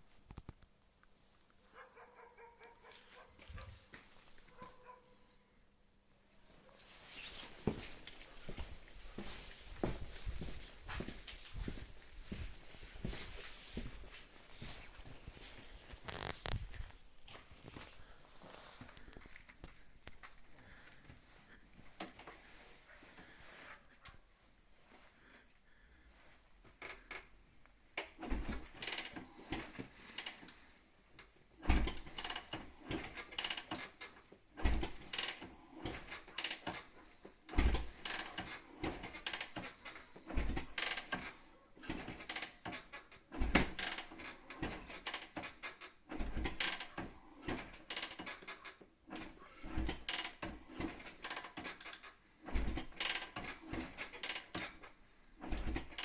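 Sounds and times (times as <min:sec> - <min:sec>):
irregular knocking and clatter: 0:28.0 - 0:56.0.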